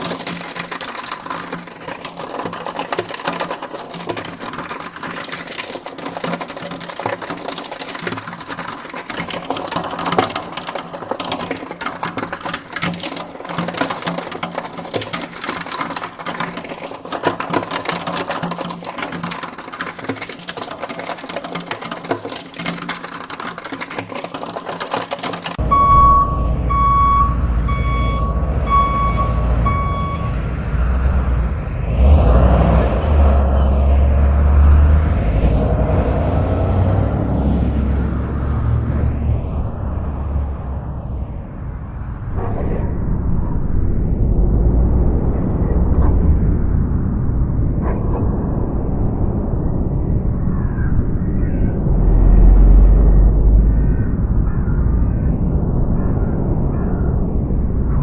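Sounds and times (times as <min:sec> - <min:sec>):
rapid clattering of small clicks: 0:00.0 - 0:25.6
low engine rumble: 0:25.5 - 0:58.0
vehicle reversing alarm beeps: 0:25.6 - 0:30.8.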